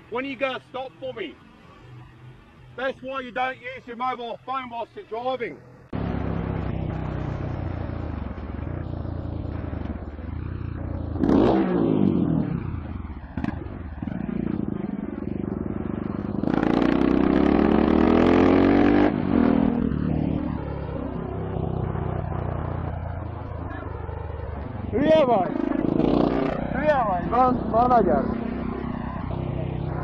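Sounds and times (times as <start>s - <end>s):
road traffic: 0.0s - 30.0s
vehicle engine running: 5.6s - 18.0s, 19.1s - 30.0s
vehicle passing close by: 10.8s - 30.0s
engine revving up: 11.2s - 20.7s, 25.0s - 30.0s.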